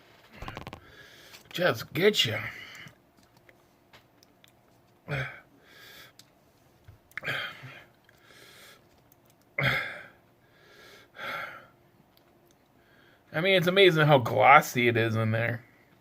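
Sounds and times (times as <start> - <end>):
man breathing hard: 0.8 - 1.5, 5.2 - 6.2, 7.2 - 8.8, 9.7 - 11.7, 12.8 - 13.3.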